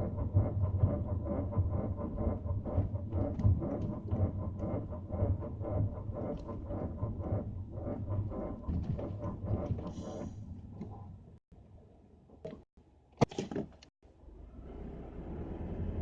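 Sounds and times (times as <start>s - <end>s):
rapid creaking and clicks: 0.0s - 11.1s.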